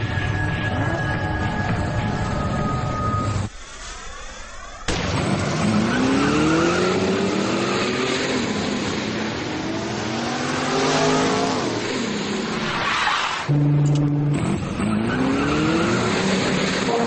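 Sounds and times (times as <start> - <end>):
car engine accelerating: 13.5 - 17.0.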